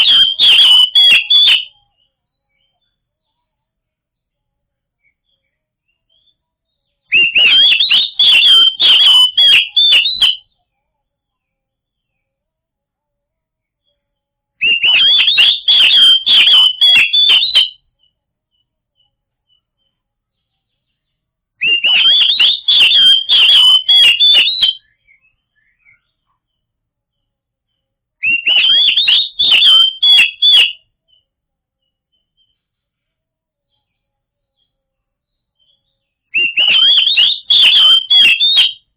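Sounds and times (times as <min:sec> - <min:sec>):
bird singing whistled notes: 0:00.0 - 0:02.9, 0:05.0 - 0:10.6, 0:14.6 - 0:18.2, 0:20.9 - 0:26.2, 0:28.2 - 0:31.3, 0:35.6 - 0:38.9.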